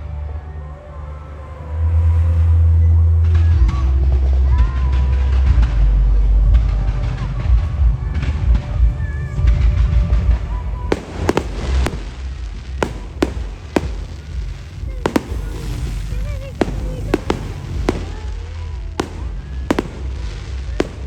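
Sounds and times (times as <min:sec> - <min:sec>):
faint crowd voices: 0:00.0 - 0:21.0
fireworks bangs: 0:10.9 - 0:21.0.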